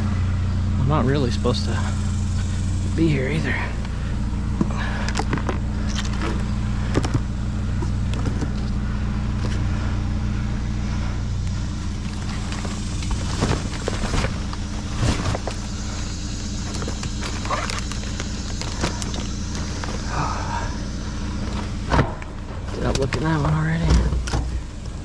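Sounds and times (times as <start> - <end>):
low engine hum: 0.0 - 25.0
items clattering and rustling: 12.1 - 15.7.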